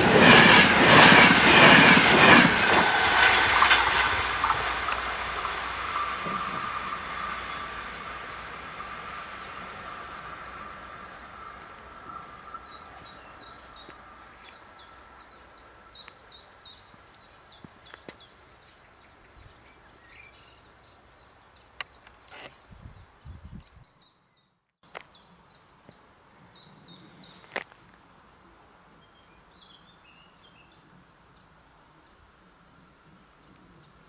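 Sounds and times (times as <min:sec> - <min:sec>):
train wheel-on-rail noise: 0:00.0 - 0:16.2.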